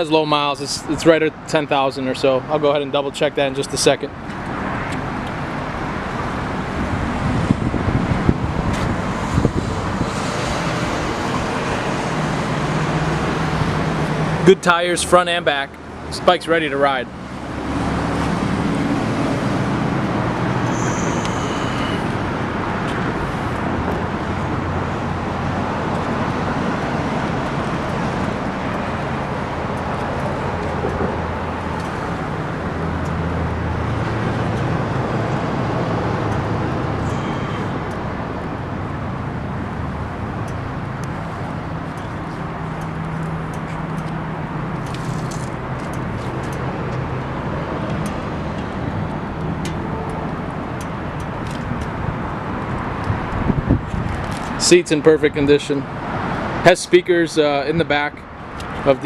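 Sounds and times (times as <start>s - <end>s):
motor vehicle rumble: 4.1s - 14.6s, 15.7s - 56.7s.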